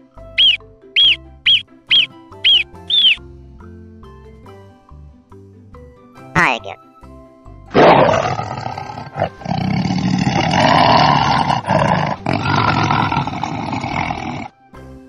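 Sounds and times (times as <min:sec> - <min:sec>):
tiger roaring: 0:07.7 - 0:14.5.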